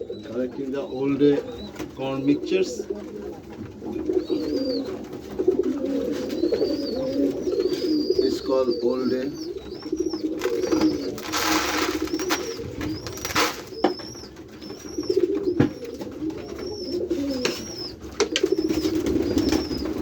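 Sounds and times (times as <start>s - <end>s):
pigeons cooing: 0.0s - 20.0s
thin high chirp: 6.4s - 20.0s
grain rustling: 10.4s - 13.8s.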